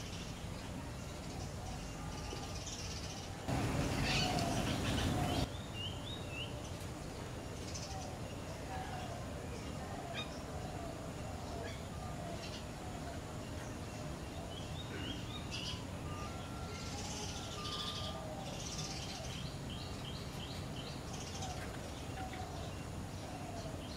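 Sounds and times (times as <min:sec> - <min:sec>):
birds chirping: 0:00.0 - 0:23.9
steady low background hum: 0:00.0 - 0:23.9
harsh raspy bird calls: 0:03.5 - 0:05.5.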